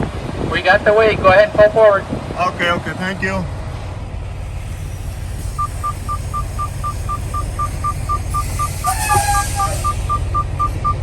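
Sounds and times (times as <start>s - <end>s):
diesel engine rumbling: 0.0s - 11.0s
rapid electronic beeping: 5.6s - 11.0s.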